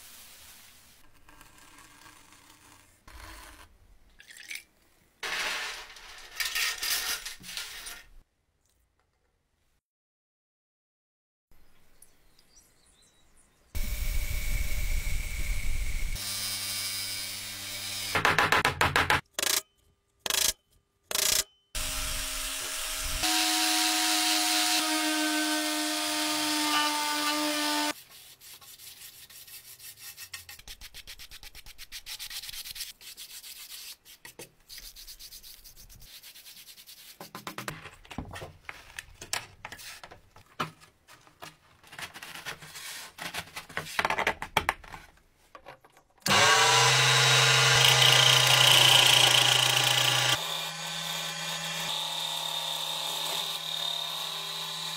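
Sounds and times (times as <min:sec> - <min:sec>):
small power tool running: 0:13.8 - 0:18.1, 0:21.8 - 0:27.9, 0:46.3 - 0:54.9.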